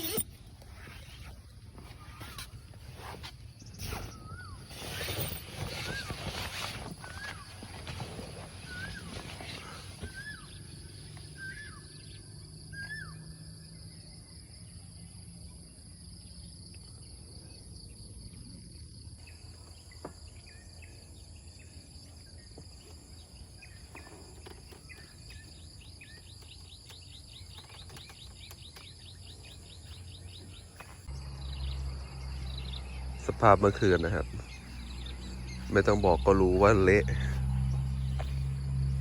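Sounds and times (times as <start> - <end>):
birds chirping: 0.0 - 1.2, 1.8 - 13.3, 19.2 - 39.0
insects buzzing: 19.0 - 39.0.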